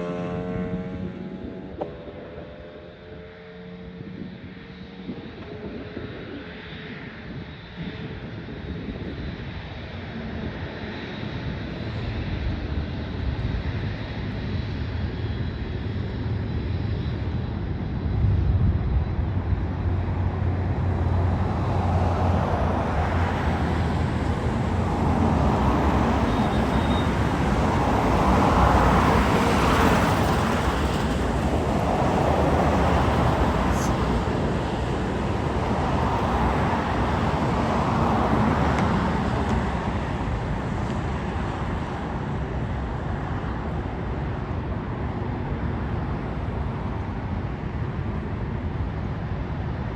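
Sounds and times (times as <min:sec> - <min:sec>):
jet airliner passing: 0:00.0 - 0:49.9.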